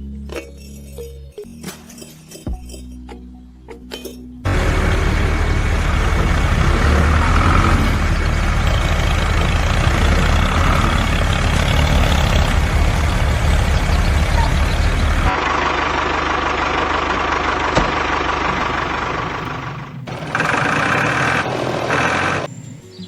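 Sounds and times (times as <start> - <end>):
engine idling: 4.5 - 22.5.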